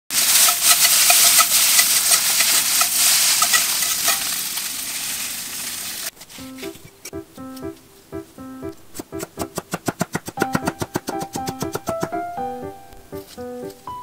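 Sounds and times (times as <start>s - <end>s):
noodles sizzling in a pan: 0.1s - 6.2s
spatula scraping a pan: 0.2s - 4.4s.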